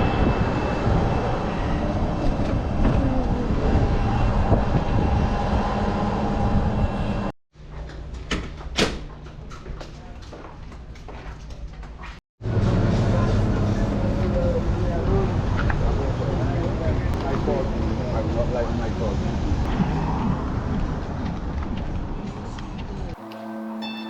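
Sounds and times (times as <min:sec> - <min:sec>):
wind and water noise: 0:00.0 - 0:07.3, 0:15.0 - 0:23.2.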